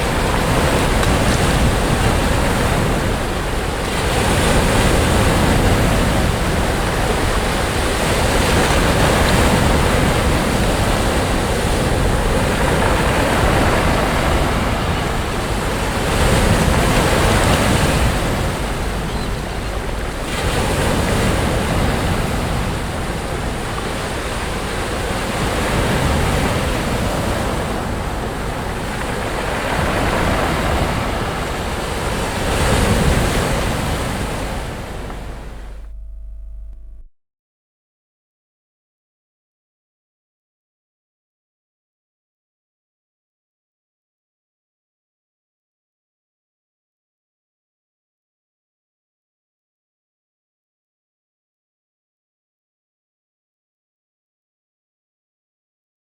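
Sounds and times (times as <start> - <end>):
waves breaking on beach: 0.0 - 36.4
wind on microphone: 0.0 - 37.1.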